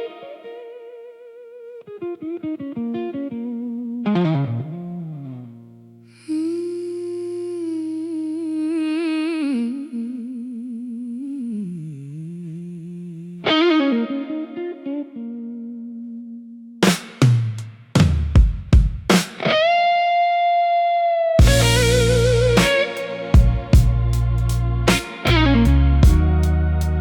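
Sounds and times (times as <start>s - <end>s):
slow blues electric guitar solo: 0.0s - 9.3s, 12.5s - 16.8s, 19.4s - 27.0s.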